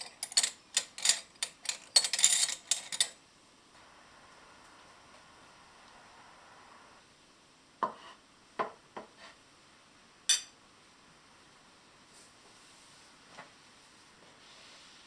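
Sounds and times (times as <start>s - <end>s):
dishes and utensils clinking: 0.0s - 3.2s, 10.3s - 10.6s.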